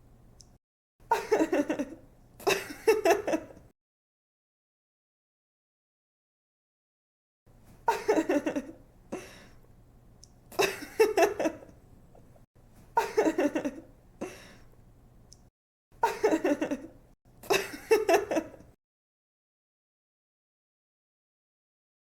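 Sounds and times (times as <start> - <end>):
young woman giggling: 1.1 - 3.6, 7.9 - 8.8, 10.6 - 11.7, 13.0 - 13.9, 16.0 - 18.7.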